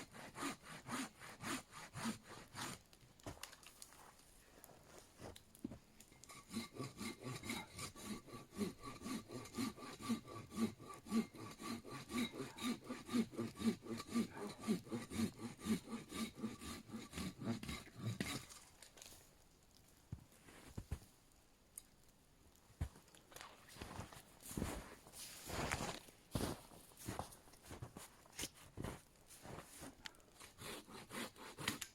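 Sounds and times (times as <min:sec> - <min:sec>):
hand saw cutting wood: 0:00.0 - 0:02.9, 0:06.2 - 0:18.6, 0:30.4 - 0:31.9.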